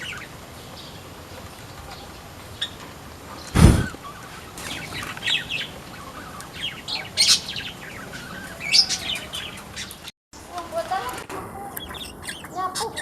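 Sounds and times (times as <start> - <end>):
small birds chirping: 0.0 - 13.0
low thump: 3.6 - 3.9.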